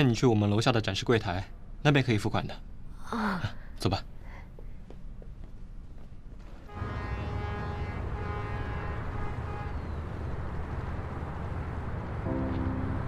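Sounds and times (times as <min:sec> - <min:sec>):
background music chords: 0:12.3 - 0:13.0.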